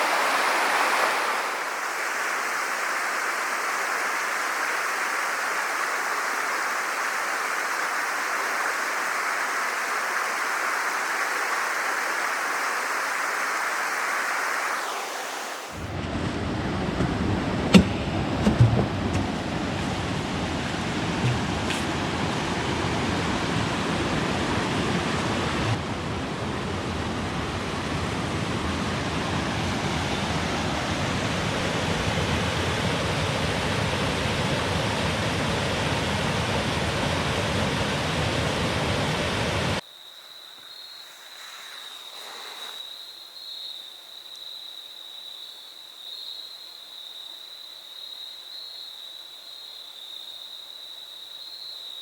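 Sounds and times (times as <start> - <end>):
rushing water: 0.0 - 16.0, 19.0 - 39.8.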